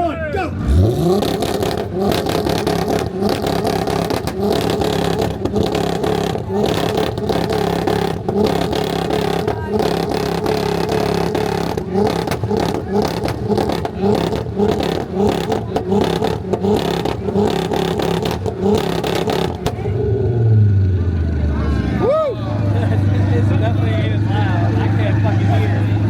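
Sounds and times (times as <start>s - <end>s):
engine low rumble: 0.0s - 26.0s
car engine on rev limiter: 0.5s - 26.0s
exhaust cracks: 0.6s - 21.4s.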